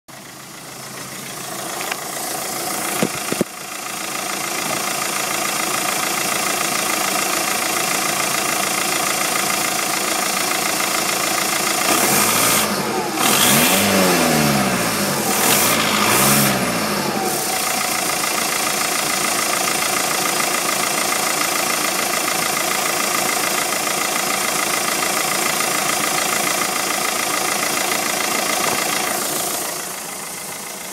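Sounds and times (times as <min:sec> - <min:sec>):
diesel engine idling: 0:00.1 - 0:30.9
engine revving: 0:11.8 - 0:18.2.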